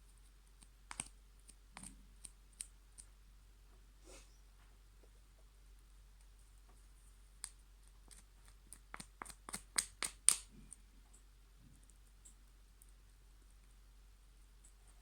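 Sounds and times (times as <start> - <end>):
slime clicking and popping: 9.0 - 10.5.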